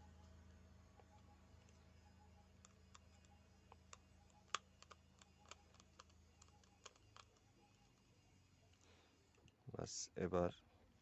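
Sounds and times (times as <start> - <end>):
low steady hum: 0.0 - 11.0
small clicks and taps: 2.6 - 7.5.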